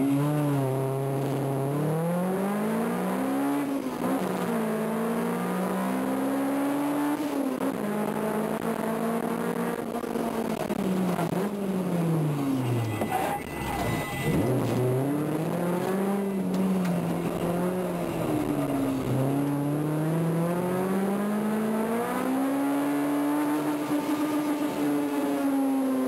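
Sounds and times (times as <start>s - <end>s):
car engine accelerating inside cabin: 0.0s - 12.6s, 14.2s - 26.0s.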